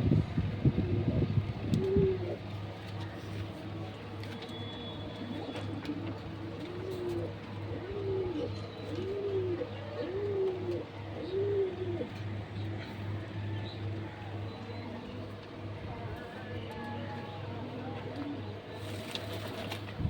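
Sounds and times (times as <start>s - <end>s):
pigeons cooing: 0.6s - 3.5s, 5.1s - 15.7s.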